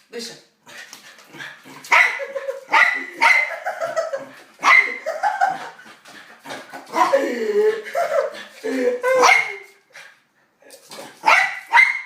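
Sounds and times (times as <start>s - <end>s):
dog barking: 1.9s - 3.7s, 4.6s - 5.1s, 9.2s - 9.6s, 11.2s - 12.0s.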